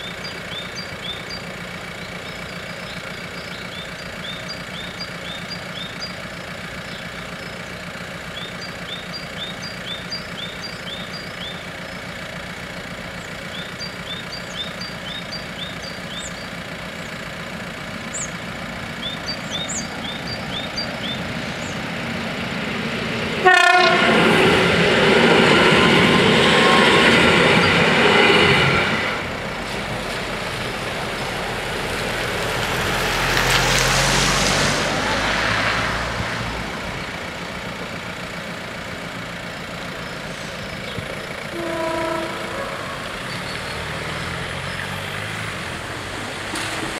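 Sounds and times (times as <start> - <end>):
train rushing past: 18.8 - 46.9
train horn blast: 23.4 - 27.8, 41.5 - 43.5.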